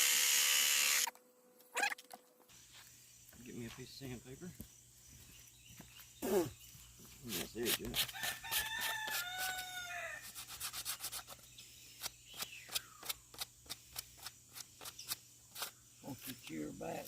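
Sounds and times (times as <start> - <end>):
hand sanding with sandpaper: 7.2 - 9.6, 10.2 - 16.5.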